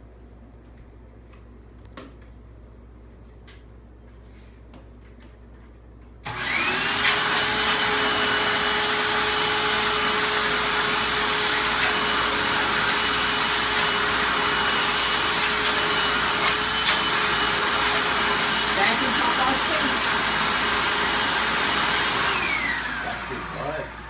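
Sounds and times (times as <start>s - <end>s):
vacuum cleaner running: 6.2s - 24.0s.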